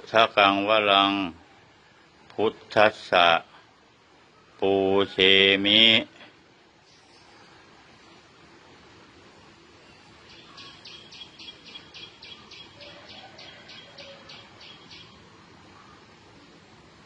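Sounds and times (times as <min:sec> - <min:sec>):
faint background hiss: 0:00.0 - 0:17.0
bird chirping: 0:09.7 - 0:16.0.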